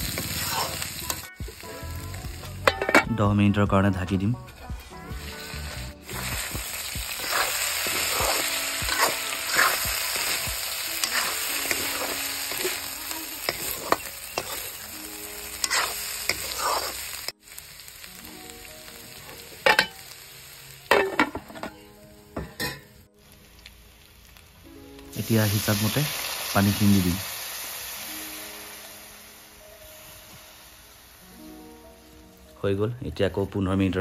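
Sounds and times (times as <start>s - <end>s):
spatula scraping a wok: 0.0s - 1.3s, 4.4s - 17.3s
meat and onions sizzling in oil: 0.0s - 3.2s, 4.5s - 32.7s
metal wok lid clanks: 2.7s - 3.1s, 19.6s - 20.0s, 20.9s - 21.8s, 22.4s - 22.9s.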